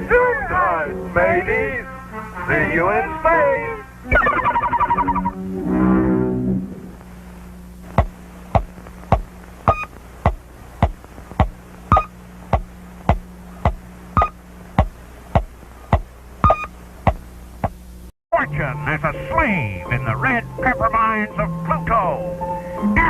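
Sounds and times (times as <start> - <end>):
steady low hum: 0.0 - 23.0
short high beep: 9.7 - 9.9, 11.9 - 12.1, 16.5 - 16.7.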